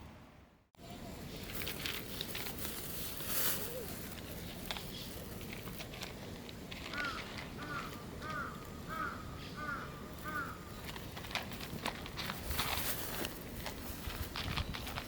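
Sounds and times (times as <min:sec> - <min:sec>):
crow cawing: 0:06.9 - 0:10.7.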